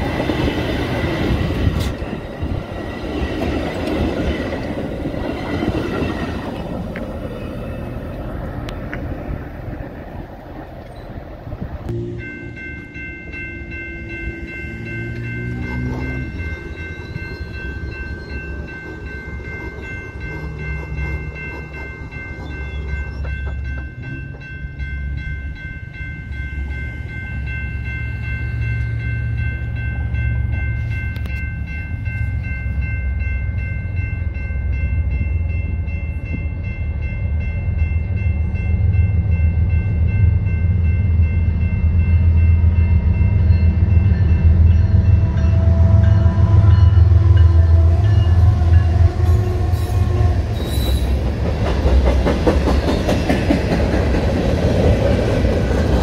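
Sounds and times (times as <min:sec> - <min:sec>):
diesel locomotive rumble: 0:00.0 - 0:56.0
crossing warning signal tones: 0:11.9 - 0:40.0.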